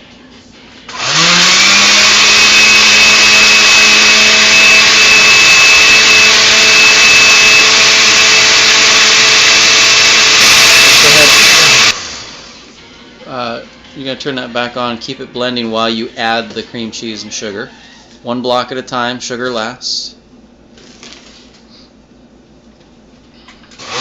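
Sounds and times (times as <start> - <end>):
blender motor whining: 0.9 - 12.7, 23.7 - 24.0.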